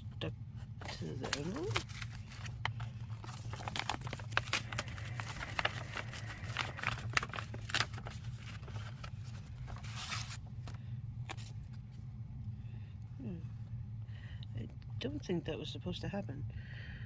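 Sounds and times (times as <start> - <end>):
low steady hum: 0.0 - 17.0
paper crinkling and rustling: 0.7 - 12.0.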